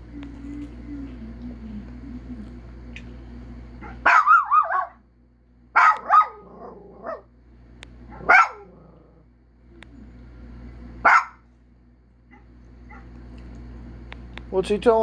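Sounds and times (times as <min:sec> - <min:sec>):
dog howling and barking: 0:03.8 - 0:05.1, 0:05.8 - 0:07.3, 0:08.1 - 0:09.3.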